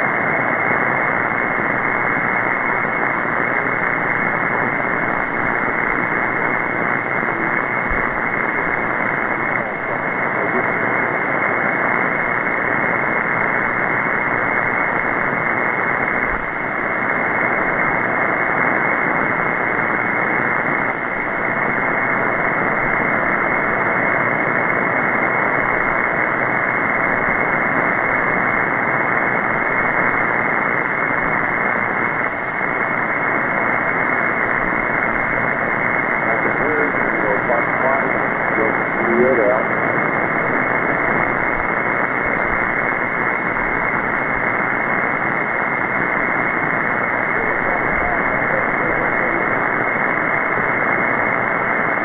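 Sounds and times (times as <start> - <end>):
radio receiver hiss: 0.0 - 52.0.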